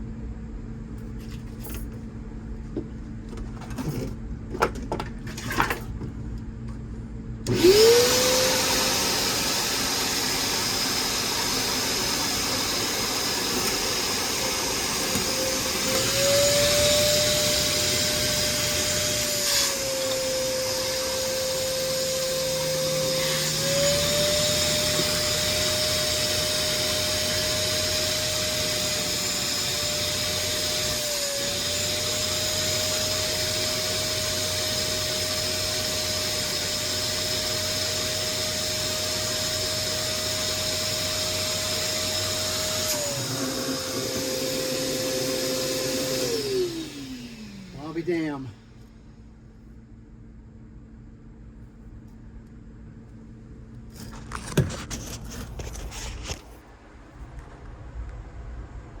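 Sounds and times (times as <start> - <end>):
small electric motor whining hum: 7.5 - 49.0.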